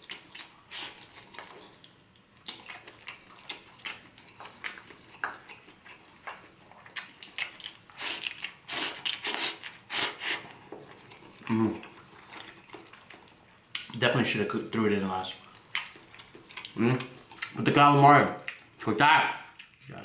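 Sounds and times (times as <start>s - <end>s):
person chewing: 0.0s - 14.0s, 15.3s - 17.6s, 18.4s - 18.9s, 19.5s - 20.0s
lip smacks and clicks: 13.7s - 14.0s.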